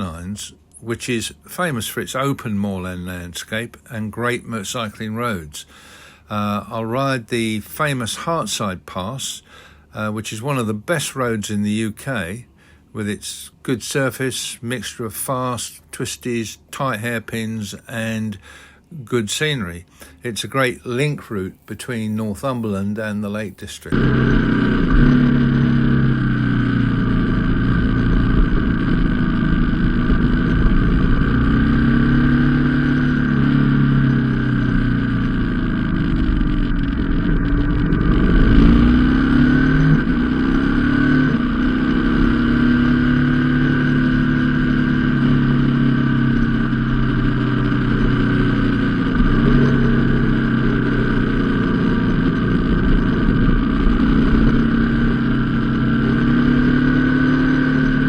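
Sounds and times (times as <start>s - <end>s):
low rumble: 23.9s - 58.0s
motorcycle engine revving: 23.9s - 58.0s.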